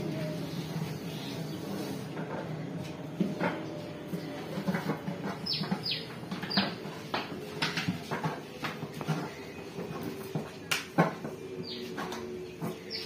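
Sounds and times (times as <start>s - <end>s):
birds chirping: 5.2s - 6.9s, 11.6s - 13.0s.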